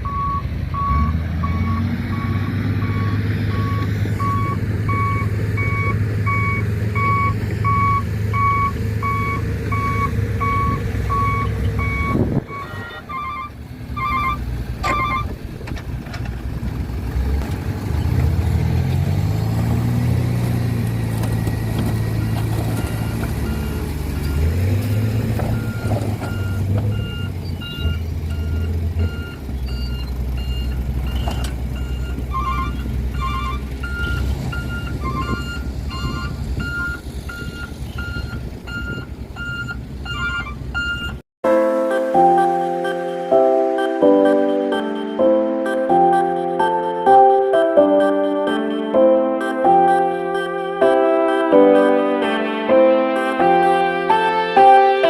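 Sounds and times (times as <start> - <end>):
reversing alarm beeping: 0.0 - 15.4, 22.1 - 41.2, 41.9 - 50.8
diesel truck engine running: 0.0 - 55.0
higher-pitched beeper: 0.1 - 15.3, 41.5 - 52.1.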